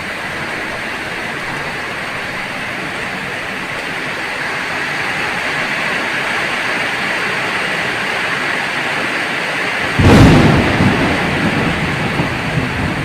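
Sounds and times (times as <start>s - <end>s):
heavy rain hissing: 0.0s - 13.0s
deep thunder clap rumbling: 9.8s - 13.0s.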